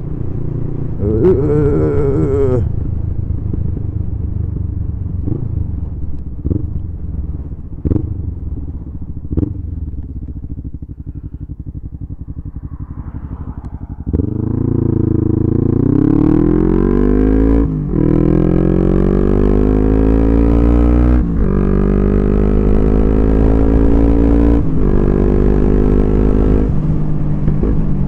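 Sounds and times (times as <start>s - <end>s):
motorcycle engine: 0.0s - 27.7s.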